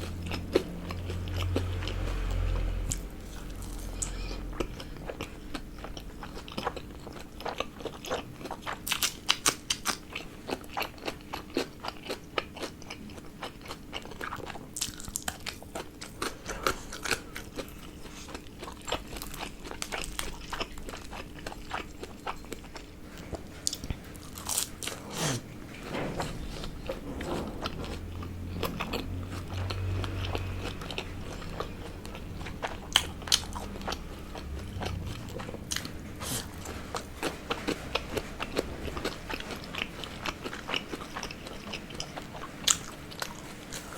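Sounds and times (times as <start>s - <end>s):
person chewing crunchy food: 0.0s - 25.6s, 26.4s - 43.9s.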